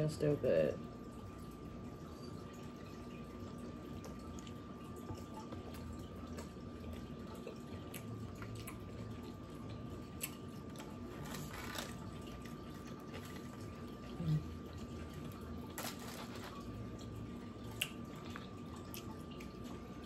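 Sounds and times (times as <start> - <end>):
faint steady hum: 0.0 - 20.0
close-up chewing: 4.0 - 16.8, 17.6 - 19.9.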